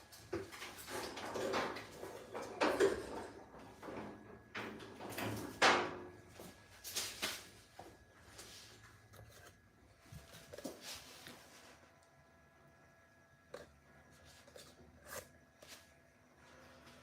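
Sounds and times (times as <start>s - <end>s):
parts knocking and scraping: 0.2s - 6.1s.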